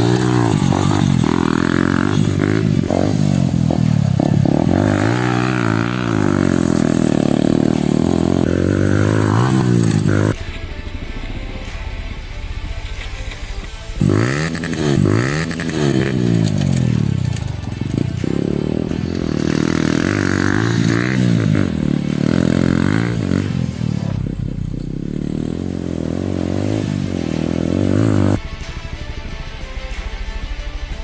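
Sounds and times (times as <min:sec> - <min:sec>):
motorcycle engine revving: 0:00.0 - 0:30.1.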